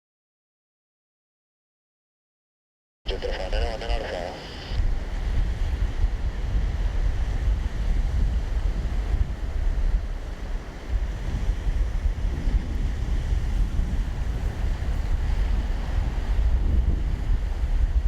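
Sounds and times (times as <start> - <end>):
wind buffeting microphone: 4.8 - 18.0.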